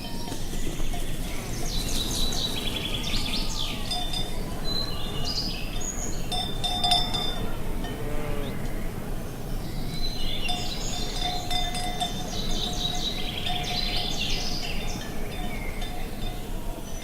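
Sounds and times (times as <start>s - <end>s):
livestock bells clinking: 0.0s - 17.0s
low rush of wind: 0.0s - 17.0s.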